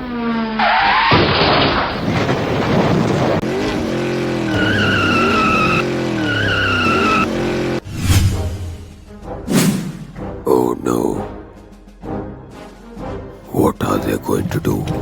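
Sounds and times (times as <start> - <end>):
tyres squealing: 1.9 - 7.8
car engine revving hard: 2.0 - 7.8.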